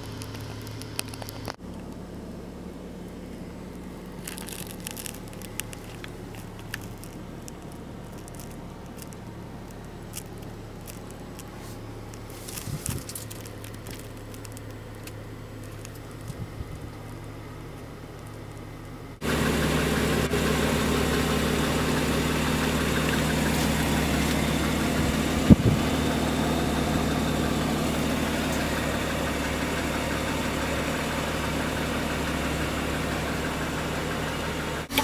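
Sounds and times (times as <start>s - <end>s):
light crackles and rustles: 0.0s - 2.1s, 3.0s - 19.0s
car engine idling inside cabin: 0.0s - 35.0s.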